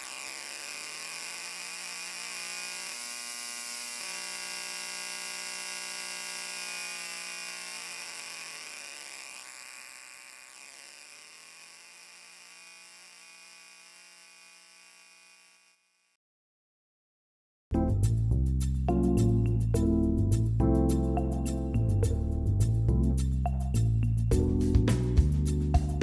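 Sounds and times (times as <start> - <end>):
electrical buzz: 0.0 - 15.9.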